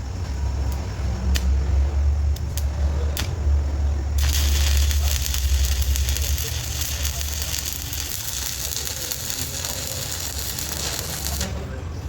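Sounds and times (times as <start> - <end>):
low machine hum: 0.0 - 12.0
arc welding crackle: 2.3 - 3.4, 4.0 - 11.8.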